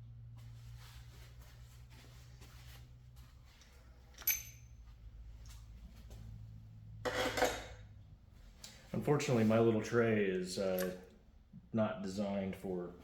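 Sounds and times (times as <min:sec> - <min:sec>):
steady low hum: 0:00.0 - 0:13.0
metal parts clicking: 0:04.2 - 0:04.7
ringing metal clink: 0:04.2 - 0:04.8.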